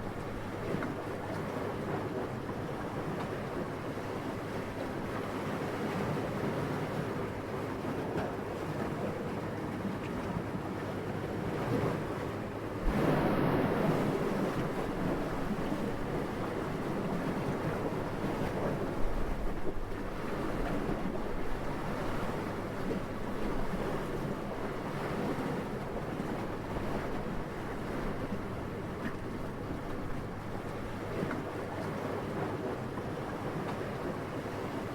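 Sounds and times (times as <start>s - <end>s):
wind blowing: 12.8s - 16.4s.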